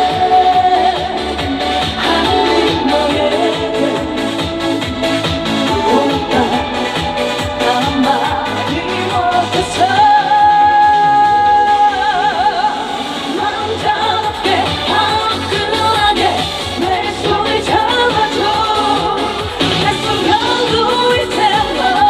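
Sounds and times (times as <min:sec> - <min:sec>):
amplified band backing: 0:00.0 - 0:22.0
woman singing: 0:00.0 - 0:22.0.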